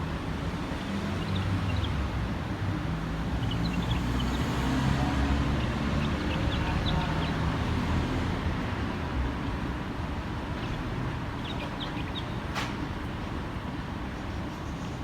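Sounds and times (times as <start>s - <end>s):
songbird chirping: 0.7s - 2.2s, 3.2s - 8.2s, 10.5s - 12.5s.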